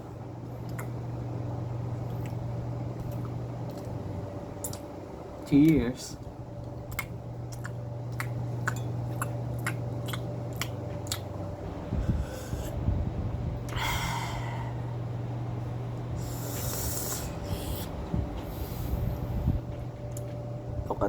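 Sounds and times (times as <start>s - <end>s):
sharp mouth clicks: 4.6s - 4.9s
loud noisy breaths: 11.9s - 12.8s, 13.7s - 15.0s, 16.1s - 19.6s.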